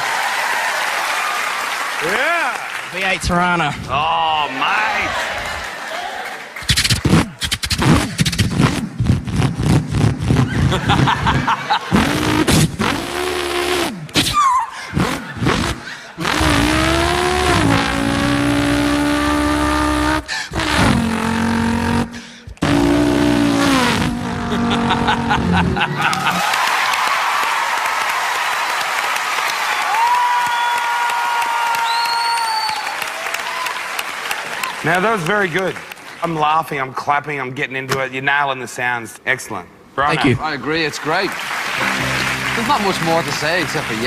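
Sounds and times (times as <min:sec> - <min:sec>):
man imitating car engine with voice: 0:14.4 - 0:25.8.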